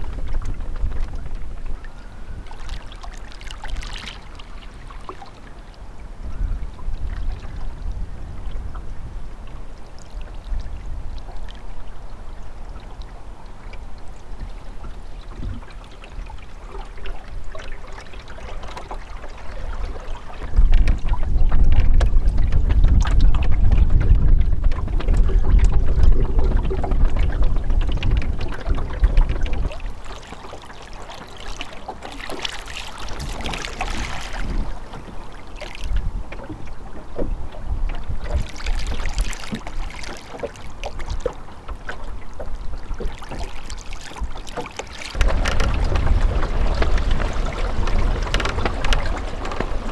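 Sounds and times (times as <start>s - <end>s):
water rushing along hull: 0.0s - 49.9s
wind buffeting microphone: 0.0s - 49.9s.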